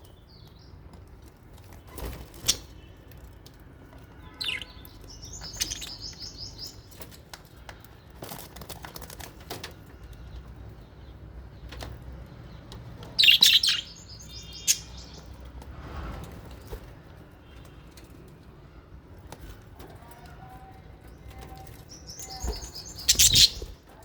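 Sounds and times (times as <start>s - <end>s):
small parrots chirping and calling: 2.3s - 2.8s, 4.3s - 7.1s, 12.5s - 15.4s, 21.5s - 23.9s.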